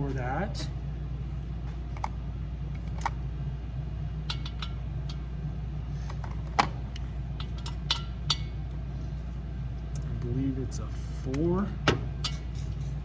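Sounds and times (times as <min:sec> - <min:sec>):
steady low hum: 0:00.0 - 0:13.0
small tools and metal parts clinking: 0:04.3 - 0:05.2, 0:07.4 - 0:08.5, 0:12.2 - 0:13.0.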